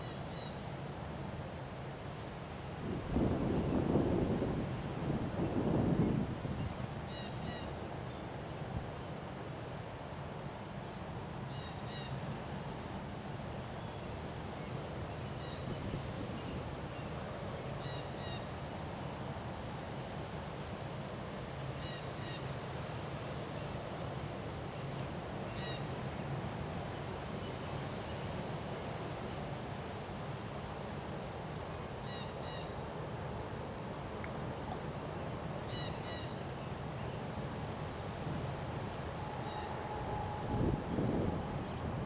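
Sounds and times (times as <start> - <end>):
wind noise: 2.8 - 7.0, 37.6 - 42.0.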